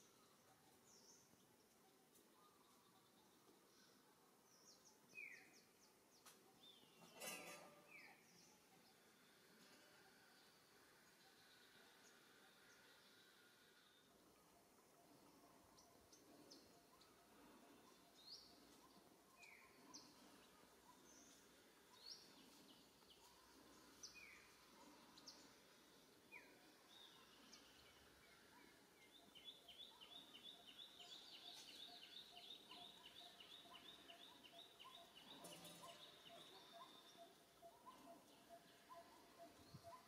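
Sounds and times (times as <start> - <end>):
bird chirps: 15.0 - 40.0.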